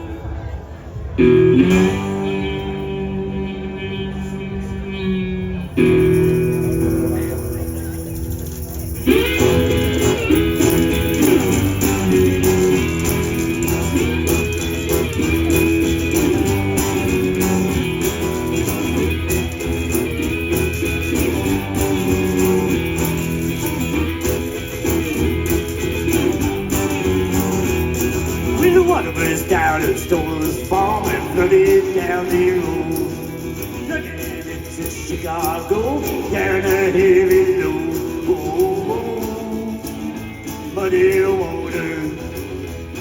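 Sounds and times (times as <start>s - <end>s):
blues band playing: 0.0s - 43.0s
lead electric guitar: 0.0s - 43.0s.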